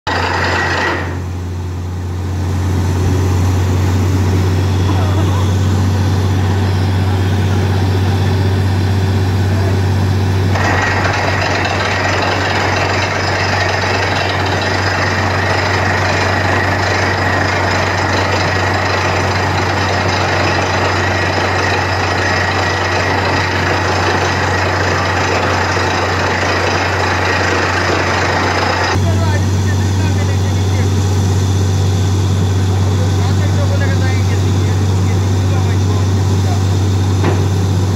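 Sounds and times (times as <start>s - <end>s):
loud drilling noise: 0.1s - 1.3s, 10.4s - 29.4s
low engine drone: 0.1s - 37.9s.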